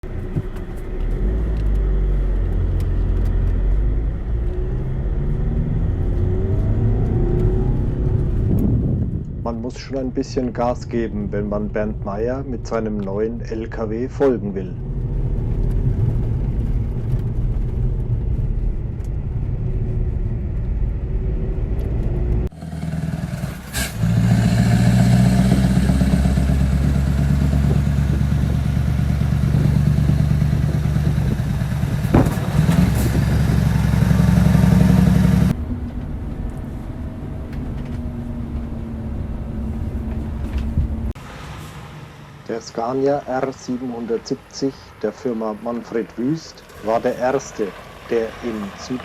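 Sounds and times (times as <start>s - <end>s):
truck diesel engine drone: 10.6s - 49.0s.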